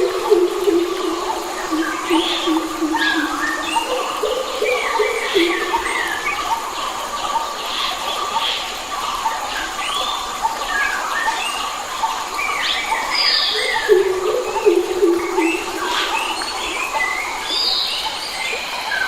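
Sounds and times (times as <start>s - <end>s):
low drawn-out bird calls: 0.0s - 7.0s
birds singing and calling: 0.0s - 19.0s.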